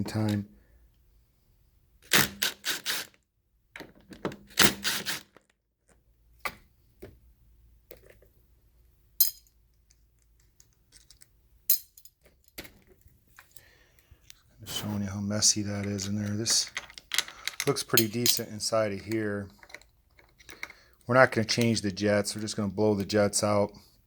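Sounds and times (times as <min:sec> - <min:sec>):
small metal parts clinking: 0:09.2 - 0:12.8, 0:15.8 - 0:18.5, 0:19.4 - 0:21.0.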